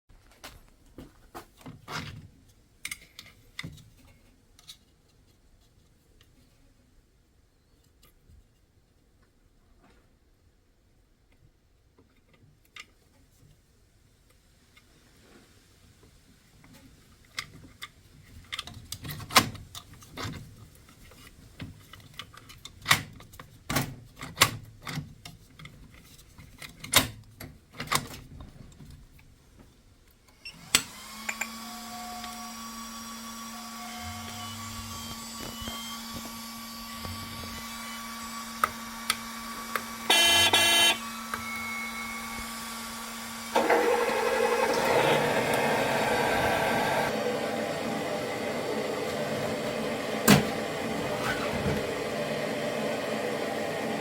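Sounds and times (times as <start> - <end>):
electric motor starting up: 30.6 - 54.0
steady electric hum: 33.3 - 42.4
short beeps: 40.1 - 41.0.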